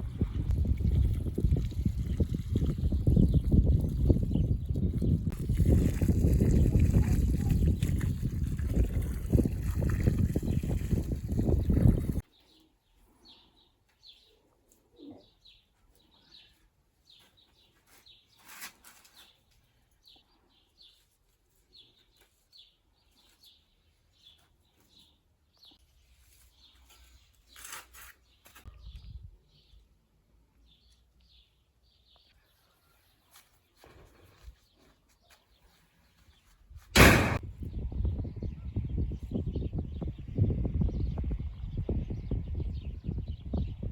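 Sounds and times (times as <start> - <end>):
loud knock: 37.0 - 37.4.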